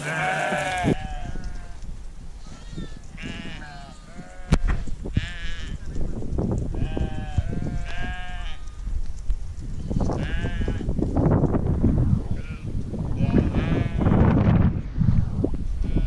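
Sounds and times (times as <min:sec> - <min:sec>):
sheep bleating: 0:00.0 - 0:01.7.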